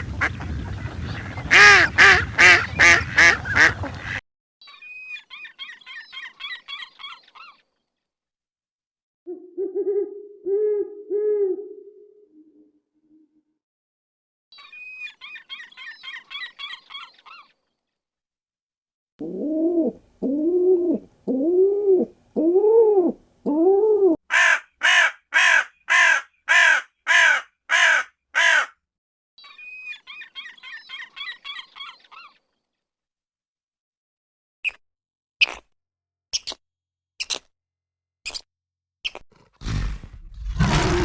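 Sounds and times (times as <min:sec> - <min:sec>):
harsh raspy bird calls: 0:24.3 - 0:28.8, 0:39.6 - 0:41.0.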